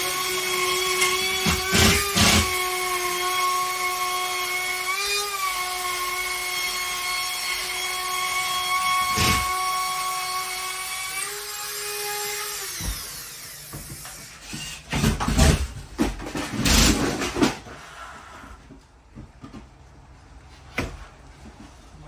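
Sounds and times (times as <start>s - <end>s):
power tool cutting drywall: 0.0s - 15.8s, 16.4s - 17.5s.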